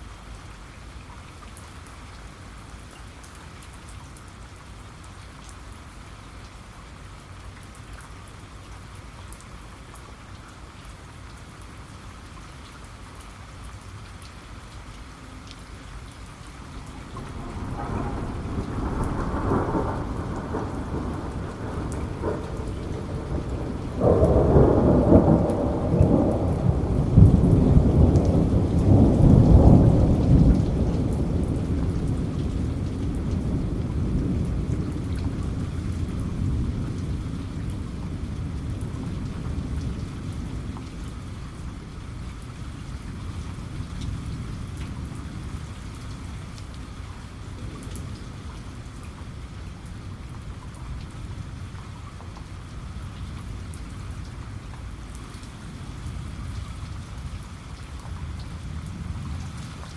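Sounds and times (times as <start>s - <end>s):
heavy rain: 0.0s - 59.9s
thunder rumbling: 16.3s - 46.4s.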